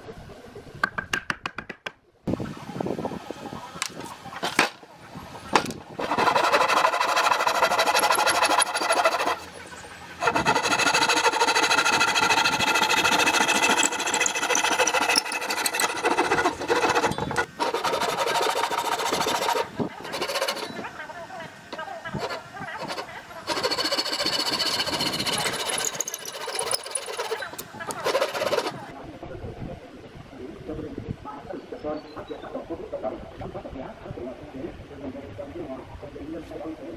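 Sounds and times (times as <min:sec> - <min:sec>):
power tool motor running: 0:05.6 - 0:20.9, 0:22.2 - 0:28.9.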